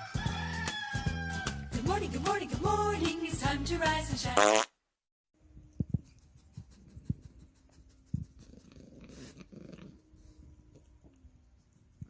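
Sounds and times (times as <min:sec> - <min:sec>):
cat purring: 0:05.7 - 0:12.0.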